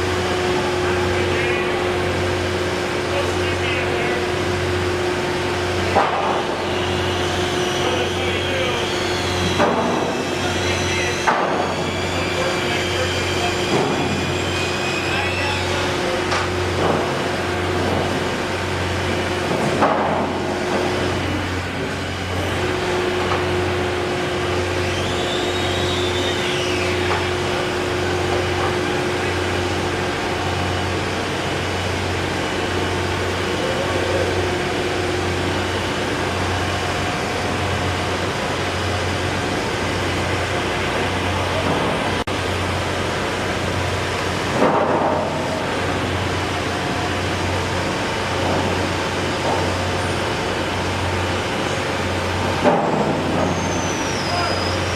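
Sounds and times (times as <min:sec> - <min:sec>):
throbbing mechanical hum: 0:00.0 - 0:54.9
faint whistle: 0:24.8 - 0:27.0, 0:53.4 - 0:54.9.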